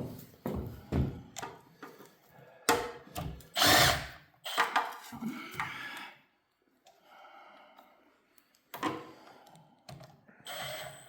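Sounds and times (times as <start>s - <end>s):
power tool bursts: 3.6s - 4.7s.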